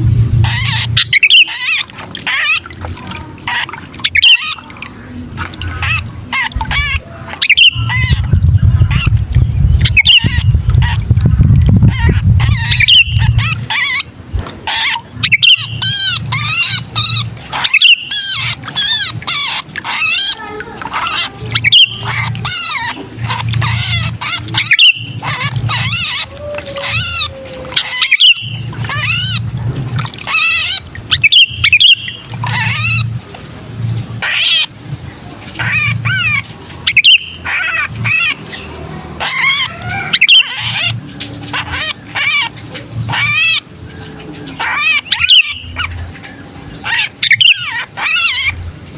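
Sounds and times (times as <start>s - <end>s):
low hum: 0.0s - 3.0s, 5.1s - 16.6s
bulbul distress calls: 0.4s - 33.1s, 34.2s - 34.7s, 35.6s - 48.8s.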